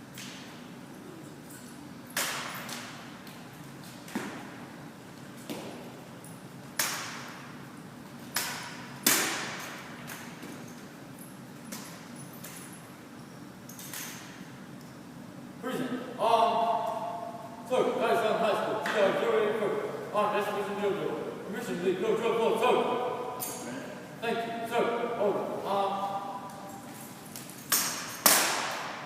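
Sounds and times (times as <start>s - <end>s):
rifles slapped and struck on floor: 2.2s - 3.0s, 6.8s - 7.3s, 8.3s - 10.6s, 27.4s - 29.0s.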